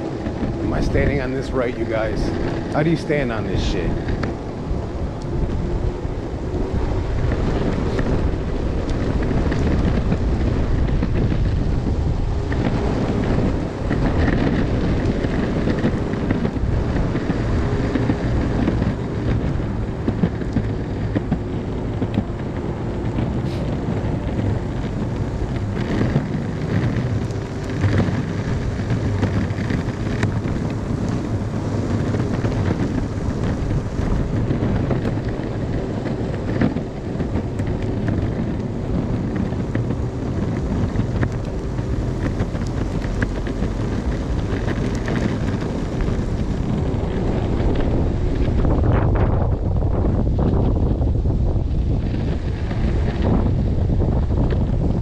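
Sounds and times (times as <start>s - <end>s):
skateboard wheels rolling on pavement: 0.0s - 55.0s
wind buffeting microphone: 0.0s - 55.0s.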